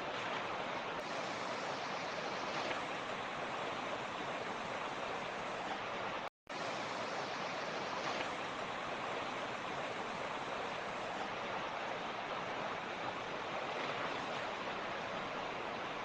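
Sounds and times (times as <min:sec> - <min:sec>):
mountain stream running: 0:00.0 - 0:16.0.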